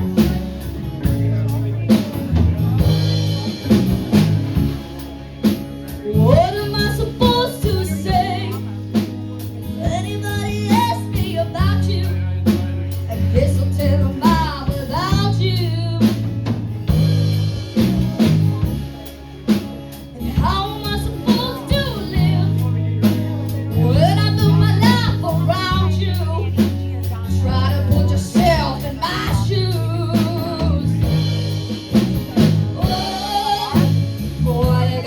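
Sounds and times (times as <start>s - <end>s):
live band playing slow song: 0.0s - 35.0s
person singing: 5.9s - 9.0s, 9.6s - 16.4s, 20.2s - 23.0s, 23.7s - 35.0s.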